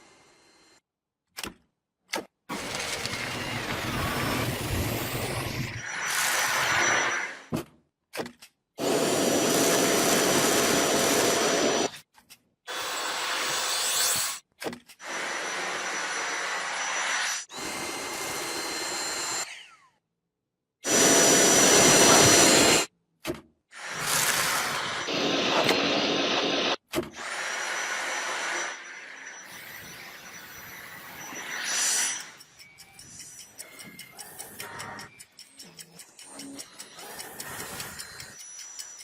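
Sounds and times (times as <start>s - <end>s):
vacuum cleaner running: 2.5s - 7.4s, 8.8s - 11.9s, 15.0s - 19.4s, 20.8s - 22.9s, 23.8s - 26.8s.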